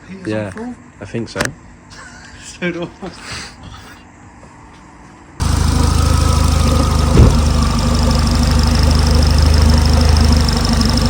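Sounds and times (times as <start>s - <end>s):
loud thud: 5.4s - 8.2s
car engine idling: 5.4s - 11.0s.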